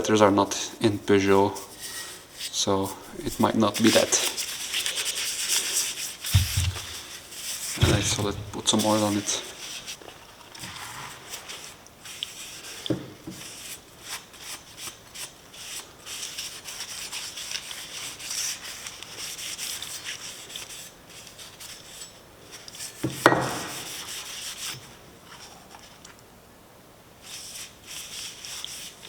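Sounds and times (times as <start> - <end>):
sharp knock: 6.4 - 7.1, 7.8 - 8.9.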